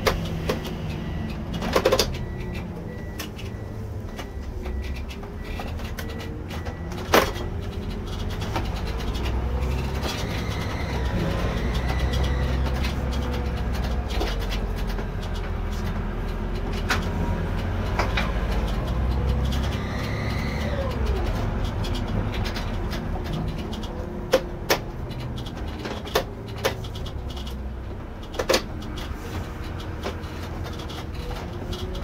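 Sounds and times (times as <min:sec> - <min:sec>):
clicks and rattles: 0:21.1 - 0:27.6.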